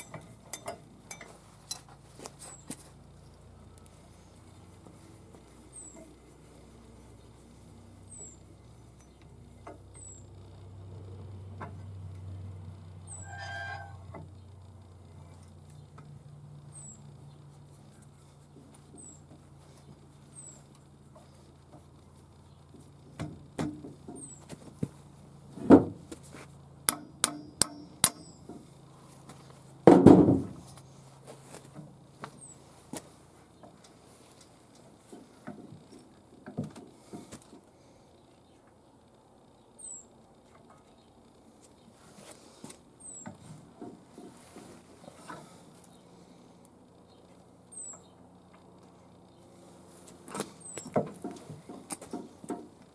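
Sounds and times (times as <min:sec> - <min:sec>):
low steady hum: 0:00.0 - 0:52.9
small bird chirping: 0:05.6 - 0:06.1, 0:08.0 - 0:10.4, 0:13.0 - 0:14.6, 0:16.6 - 0:17.6, 0:19.0 - 0:19.3, 0:19.9 - 0:21.5, 0:24.2 - 0:24.5, 0:39.5 - 0:40.2, 0:43.0 - 0:43.3, 0:47.0 - 0:48.3, 0:50.6 - 0:51.0.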